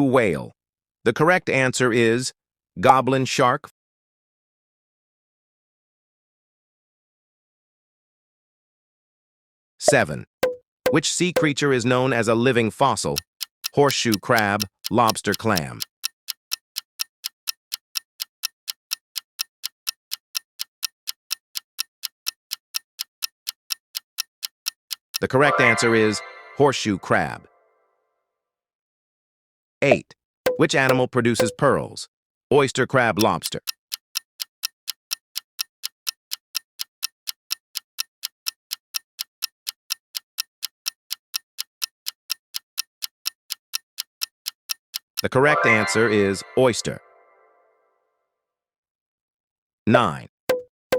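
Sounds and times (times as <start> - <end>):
clock ticking: 9.9 - 11.5, 13.0 - 25.8, 30.5 - 31.6, 33.2 - 45.4.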